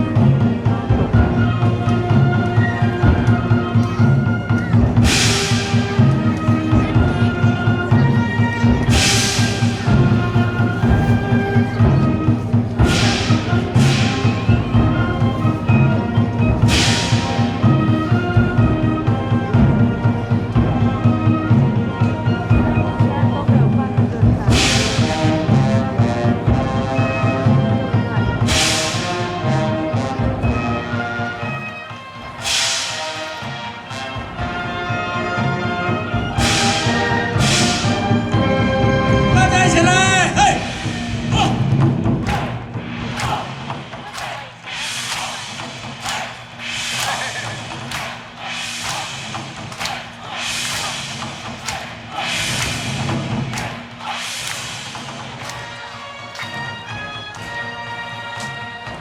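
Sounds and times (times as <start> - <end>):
wind band playing chords: 0.0 - 59.0
percussion crashes: 4.7 - 20.8, 24.4 - 25.6, 28.4 - 29.6, 32.4 - 34.8, 36.2 - 38.6, 40.3 - 59.0
cymbal crashes: 8.8 - 11.0, 12.8 - 14.8, 16.6 - 17.7, 44.6 - 55.7.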